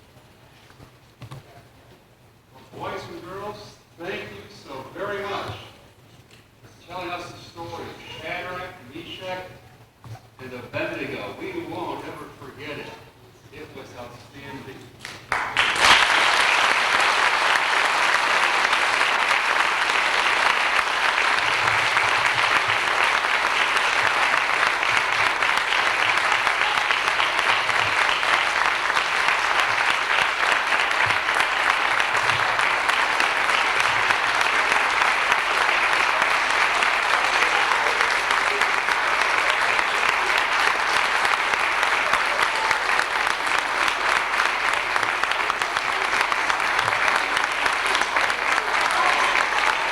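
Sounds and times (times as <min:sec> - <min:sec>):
audience applauding: 0:15.0 - 0:49.9.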